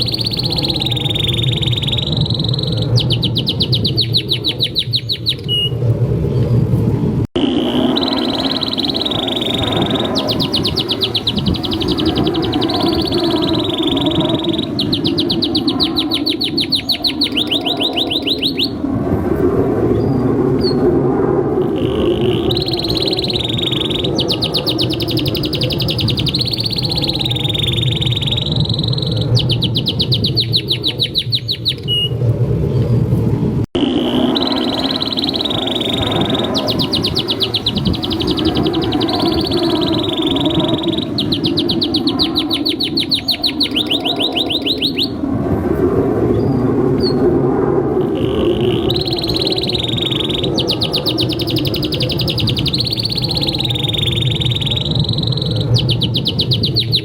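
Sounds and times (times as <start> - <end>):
canary singing: 0.0 - 5.8, 7.4 - 18.8, 21.6 - 32.2, 33.8 - 45.2, 48.0 - 57.0
steady low rumble: 0.0 - 57.0.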